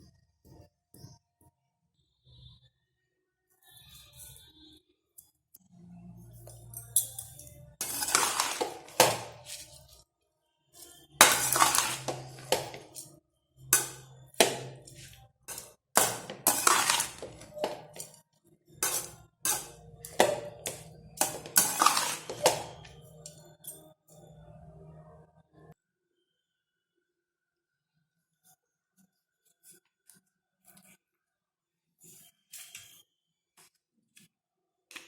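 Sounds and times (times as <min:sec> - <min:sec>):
metal utensil clanking on pot: 0:06.8 - 0:09.6, 0:11.2 - 0:13.0, 0:13.8 - 0:18.1, 0:18.8 - 0:23.8.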